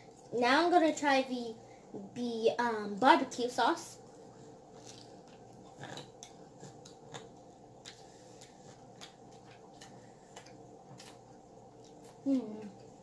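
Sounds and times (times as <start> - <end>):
low steady hum: 0.0 - 13.0
chewing clicks and smacks: 4.8 - 12.9.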